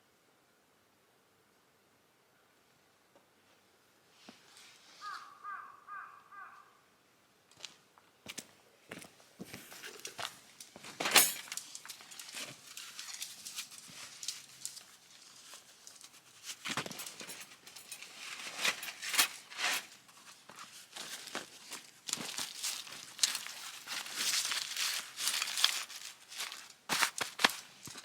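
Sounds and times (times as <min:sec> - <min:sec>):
rustling: 0:09.5 - 0:28.0.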